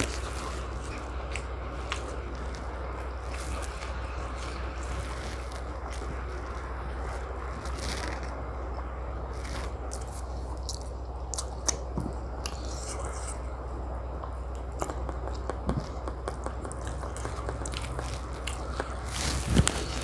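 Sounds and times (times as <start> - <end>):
person chewing food: 0.0 - 20.0
steady low hum: 0.0 - 20.0
wet mouth clicks and smacks: 9.5 - 13.4, 14.2 - 19.1.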